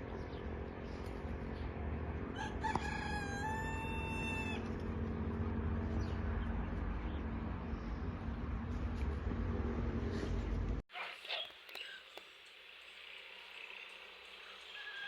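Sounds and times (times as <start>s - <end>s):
low background hum: 0.0s - 10.8s
rooster crowing: 2.3s - 4.7s.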